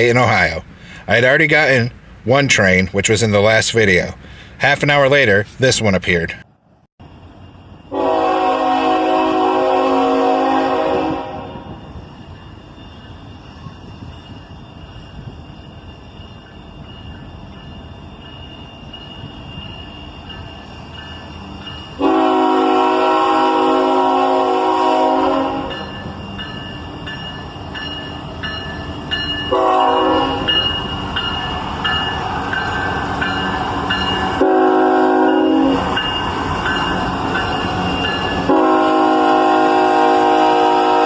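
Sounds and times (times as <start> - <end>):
train rumble: 0.0 - 41.0
train air horn chord: 7.9 - 11.8, 22.0 - 25.9, 29.5 - 30.6, 34.3 - 35.9, 38.4 - 41.0.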